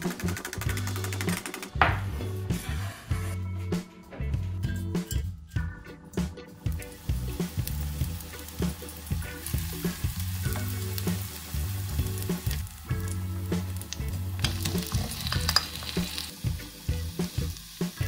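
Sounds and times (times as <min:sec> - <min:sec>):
onion sizzling in oil: 0:06.7 - 0:18.0.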